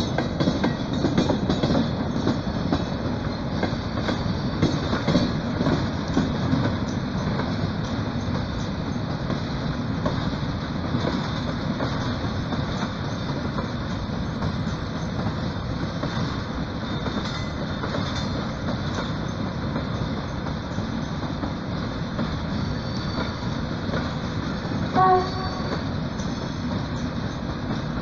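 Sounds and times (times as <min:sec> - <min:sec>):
train wheels rumbling on rails: 0:00.0 - 0:28.0
wheels clicking over rail joints: 0:00.0 - 0:28.0.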